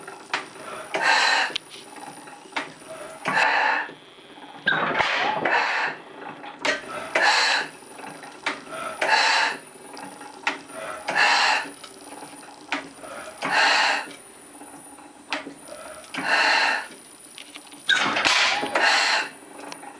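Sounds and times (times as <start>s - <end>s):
valve gear clicks and knocks: 1.6s - 3.4s, 9.9s - 14.2s
gas engine hissing puffs: 6.8s - 9.7s, 10.6s - 14.2s, 15.6s - 17.0s, 18.5s - 19.4s.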